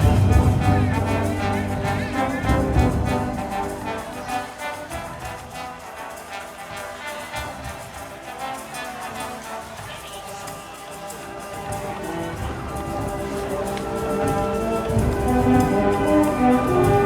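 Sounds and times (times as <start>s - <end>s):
heavy drum strokes: 0.0s - 4.3s
wind band playing: 0.0s - 17.0s.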